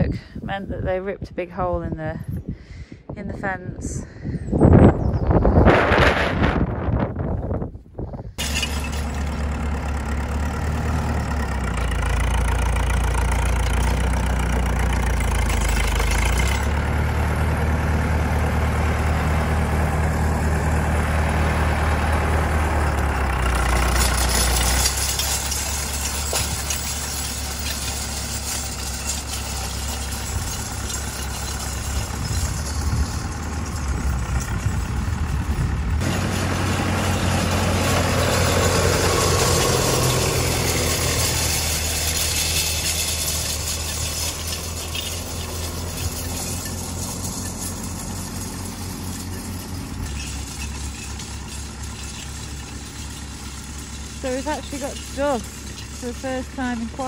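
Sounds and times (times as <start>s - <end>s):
farm machinery engine droning: 4.0s - 57.0s.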